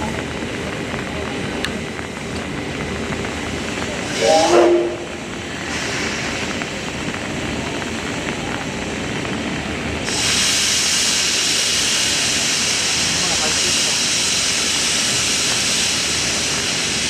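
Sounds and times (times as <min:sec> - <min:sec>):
steam hissing: 0:00.9 - 0:17.0.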